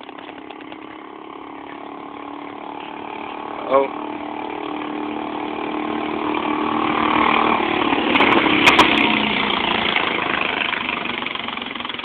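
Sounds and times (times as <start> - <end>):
sharp clicks: 0.0 - 1.0
small engine driving past: 0.0 - 12.0.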